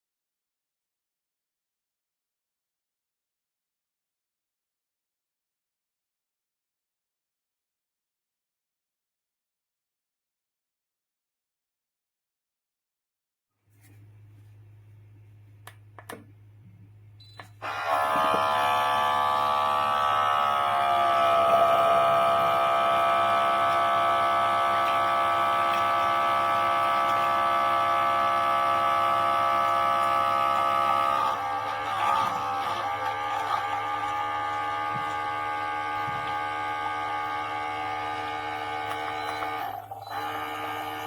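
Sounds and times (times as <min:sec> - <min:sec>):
espresso machine pump buzzing: 0:17.4 - 0:41.0.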